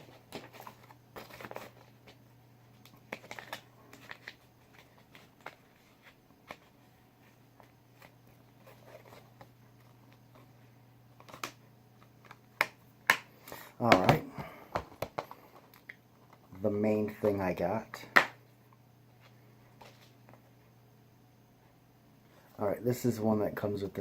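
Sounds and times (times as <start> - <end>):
paper rustling: 0.0 - 2.2, 3.0 - 10.5
steady low hum: 0.0 - 24.0.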